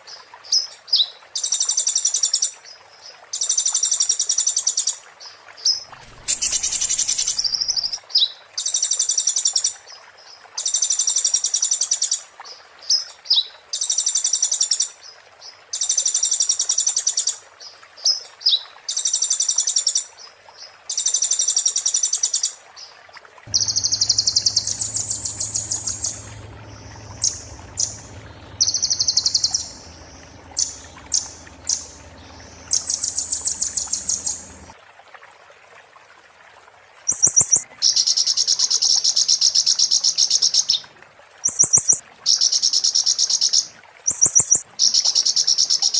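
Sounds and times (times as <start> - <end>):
songbird scratchy trills: 5.9 - 8.0, 23.5 - 34.7
steady low hum: 23.5 - 34.8.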